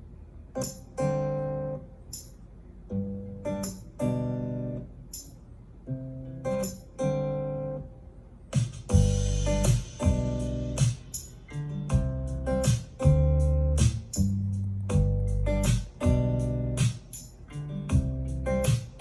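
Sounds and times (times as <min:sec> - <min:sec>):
guitar chords over speaker: 0:00.5 - 0:08.1, 0:08.9 - 0:19.0
noisy burst with heavy bass: 0:08.9 - 0:11.3, 0:11.9 - 0:17.0.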